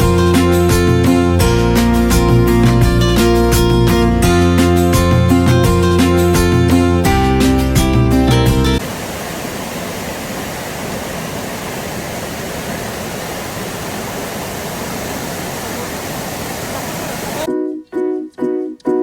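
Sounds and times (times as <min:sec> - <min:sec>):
water rushing: 0:08.8 - 0:17.5.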